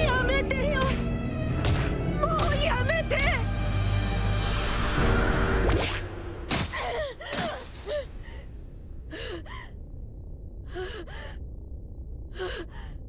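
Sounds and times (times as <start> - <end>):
person sobbing: 6.8 - 8.4, 9.1 - 9.7.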